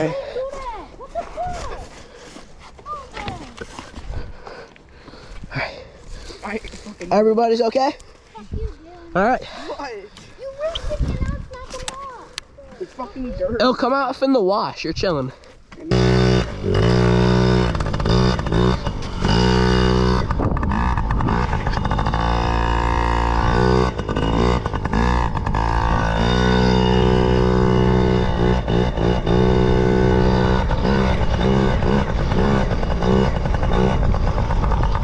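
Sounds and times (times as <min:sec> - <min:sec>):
two-stroke dirt bike engine: 0:15.8 - 0:35.0.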